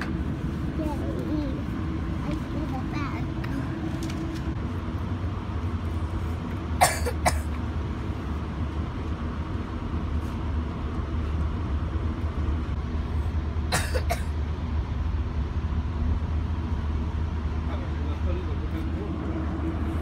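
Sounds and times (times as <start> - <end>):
train car rumble: 0.0 - 20.0
person coughing: 6.8 - 7.5, 13.7 - 14.3.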